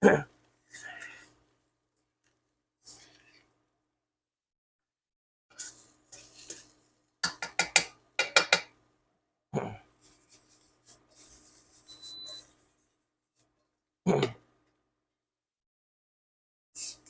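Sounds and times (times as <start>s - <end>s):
utensil scraping a pan: 5.5s - 8.7s
sharp clanks against pan: 7.2s - 8.7s.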